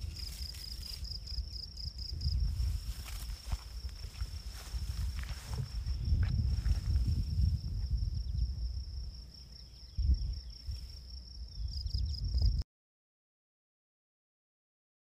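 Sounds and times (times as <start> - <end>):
low microphone rumble: 1.0 - 12.6.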